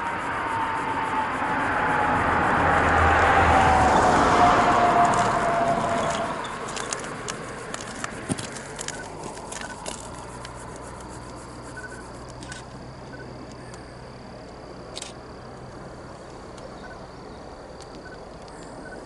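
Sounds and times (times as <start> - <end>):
insects calling: 0.0 - 19.0
train rumble: 0.0 - 19.0
sharp clicks: 5.0 - 13.8, 14.9 - 16.7, 17.8 - 19.0.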